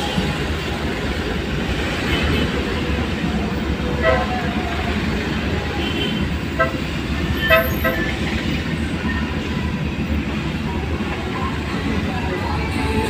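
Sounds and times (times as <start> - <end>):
street traffic noise: 0.0 - 13.0
vehicle horn toots: 5.8 - 8.2.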